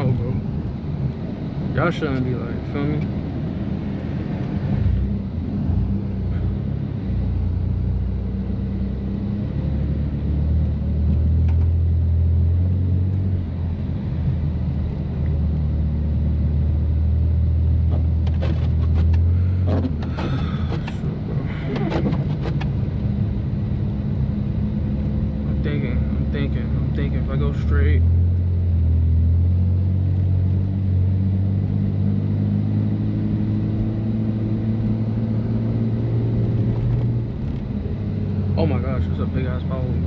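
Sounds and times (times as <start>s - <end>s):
car exhaust droning: 0.0s - 29.8s.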